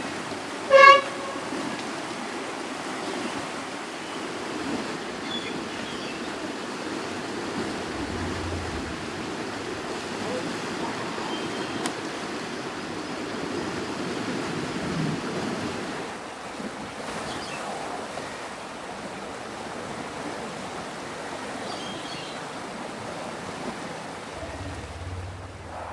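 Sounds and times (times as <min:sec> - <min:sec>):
river water rushing: 0:00.0 - 0:16.1.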